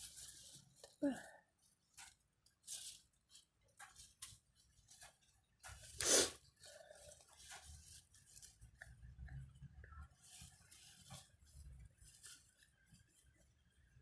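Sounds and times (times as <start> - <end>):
stems and leaves snapping: 1.9 - 6.0.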